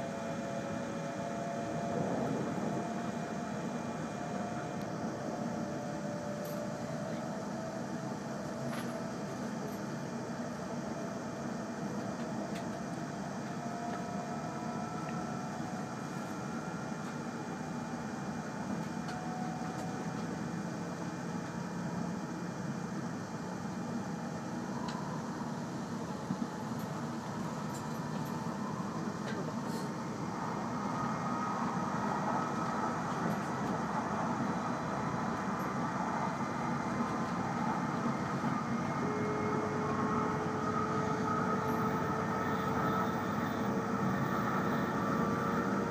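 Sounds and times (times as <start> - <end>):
faint rising whine: 0.0 - 8.0
train rolling rumble: 0.0 - 45.9.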